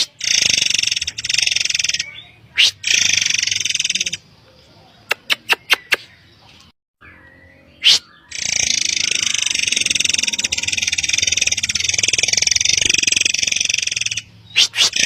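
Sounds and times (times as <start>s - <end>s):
bird rattling trill: 0.0s - 4.2s, 8.3s - 15.0s
bird sharp high call: 7.1s - 15.0s.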